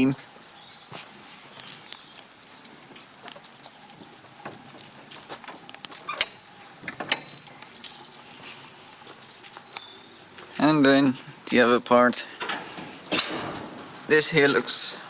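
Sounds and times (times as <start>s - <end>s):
rain pattering and dripping: 0.0s - 15.0s
faint hiss: 4.3s - 15.0s.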